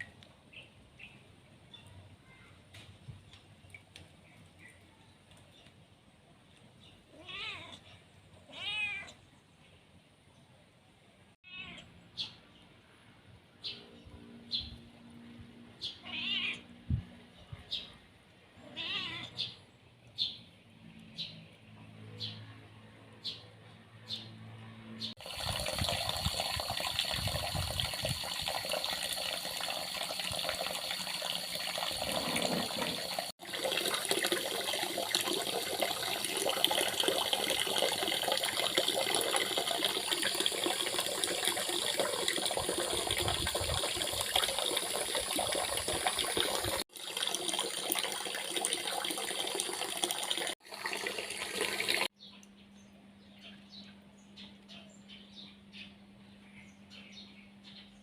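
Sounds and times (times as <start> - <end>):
running water rushing: 25.2 - 52.1.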